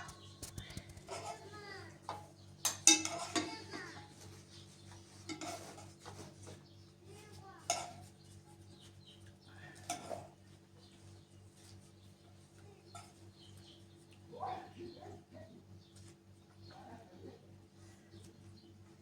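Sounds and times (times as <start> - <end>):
steady low hum: 0.0 - 3.0
pots and dishes being handled: 0.0 - 6.6, 7.6 - 8.2, 9.8 - 10.4.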